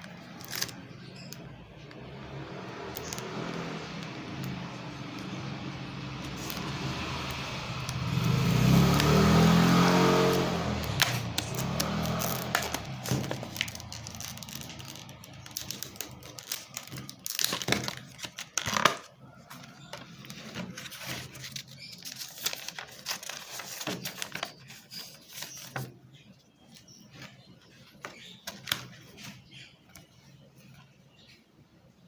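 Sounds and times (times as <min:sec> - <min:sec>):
plastic packaging crinkling: 0:00.0 - 0:01.4, 0:10.2 - 0:25.9
passing vehicle engine: 0:01.8 - 0:16.1
sharp plastic clicks: 0:10.8 - 0:19.1.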